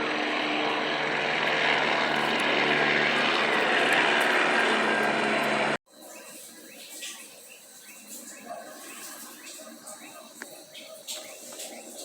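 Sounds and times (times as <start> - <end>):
helicopter flying overhead: 0.0 - 5.8
low hum: 0.0 - 5.8.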